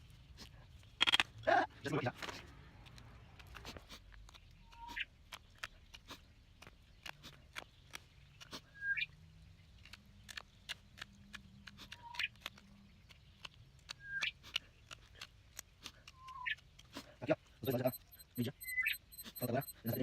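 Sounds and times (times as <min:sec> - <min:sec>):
knife carving wood: 0:02.2 - 0:08.9, 0:09.6 - 0:18.1.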